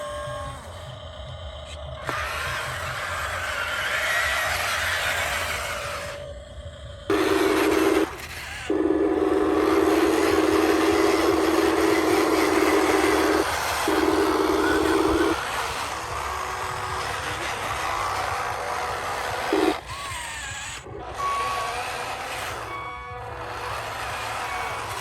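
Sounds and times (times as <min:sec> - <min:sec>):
rumbling engine-like sound: 0:00.0 - 0:25.0
loud low buzzing tone: 0:07.1 - 0:19.9
short high reversing beeps: 0:22.5 - 0:25.0.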